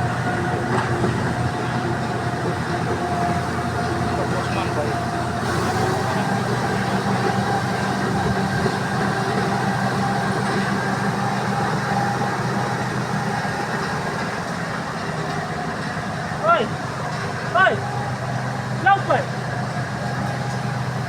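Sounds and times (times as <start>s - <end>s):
vehicle engine droning with whine: 0.0s - 14.2s.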